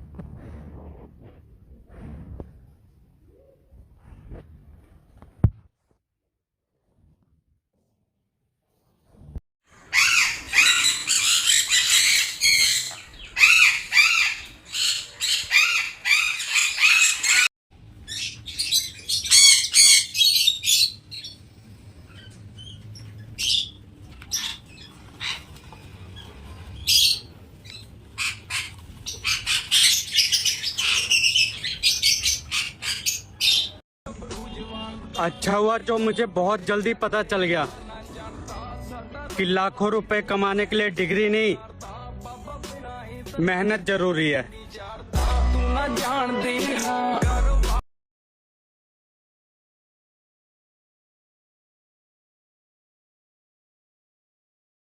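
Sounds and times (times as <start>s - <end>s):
parrots calling: 9.8s - 21.4s, 22.1s - 33.8s.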